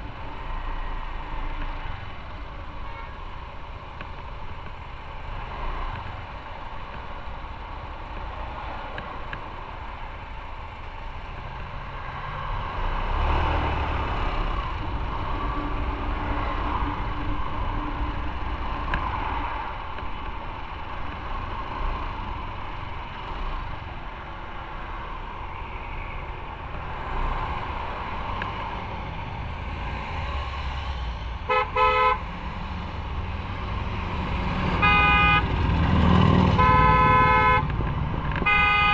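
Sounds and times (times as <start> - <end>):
vehicle horn beeps: 31.5 - 32.2, 34.8 - 35.4, 36.6 - 37.7, 38.4 - 38.9.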